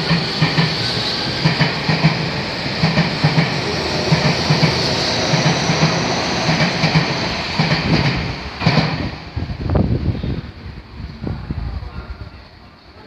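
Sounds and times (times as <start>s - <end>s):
train wheels clacking over rail joints: 0.0s - 9.3s.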